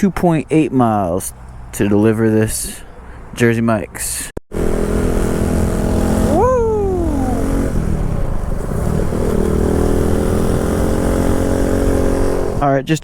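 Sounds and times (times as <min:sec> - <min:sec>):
motorcycle engine revving: 0:04.5 - 0:12.6.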